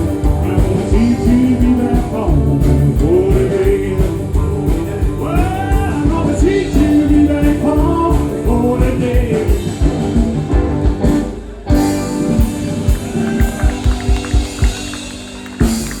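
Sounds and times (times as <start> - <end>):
rock band playing: 0.0 - 16.0
person singing: 0.1 - 10.2.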